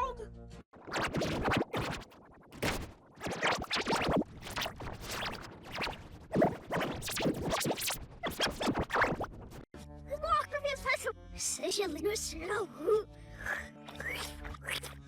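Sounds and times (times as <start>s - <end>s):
scratchy stuttering: 0.7s - 9.6s
distorted cartoon soundtrack music: 0.8s - 9.6s.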